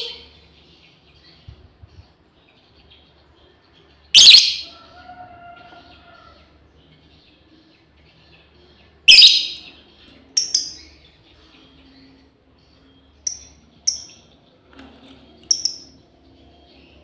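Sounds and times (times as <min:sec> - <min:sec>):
lovebird shrill calls: 0:04.2 - 0:04.7, 0:09.1 - 0:09.6.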